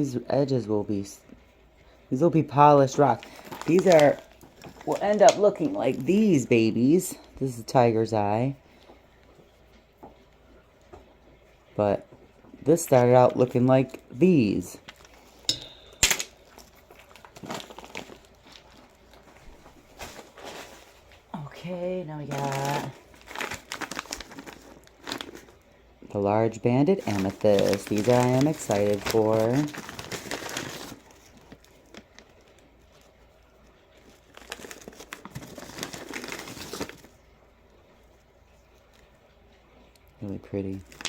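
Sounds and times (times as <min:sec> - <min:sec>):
packaging crinkling: 0:02.9 - 0:06.4, 0:14.7 - 0:21.5, 0:22.1 - 0:25.7, 0:27.0 - 0:37.2
handling rustle: 0:03.1 - 0:06.2, 0:16.4 - 0:21.6, 0:22.3 - 0:25.6, 0:27.0 - 0:37.2.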